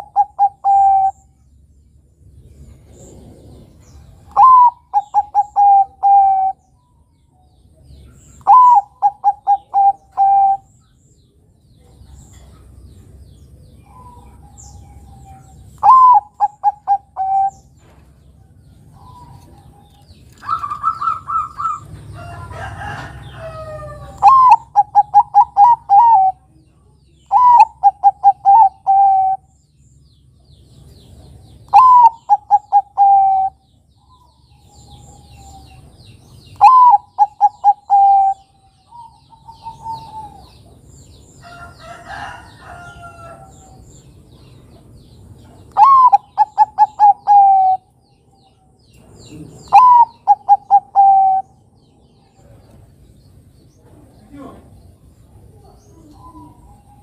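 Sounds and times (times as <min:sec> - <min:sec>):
dove cooing: 0:00.0 - 0:01.3, 0:03.0 - 0:06.6, 0:08.4 - 0:10.7, 0:13.8 - 0:18.0, 0:18.9 - 0:26.5, 0:27.3 - 0:29.5, 0:31.7 - 0:35.9, 0:36.6 - 0:40.7, 0:45.6 - 0:47.9, 0:49.3 - 0:51.6.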